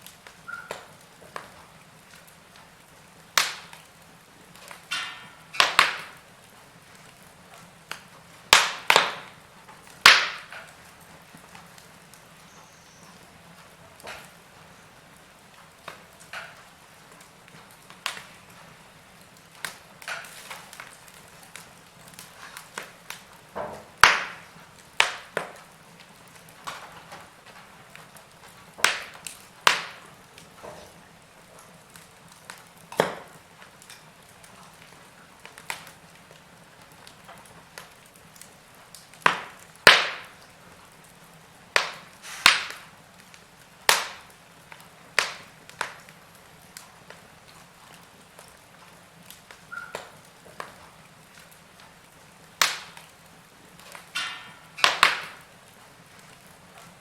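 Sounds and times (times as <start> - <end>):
faint steady hiss: 0.0 - 57.0
wood fire crackling: 0.0 - 57.0.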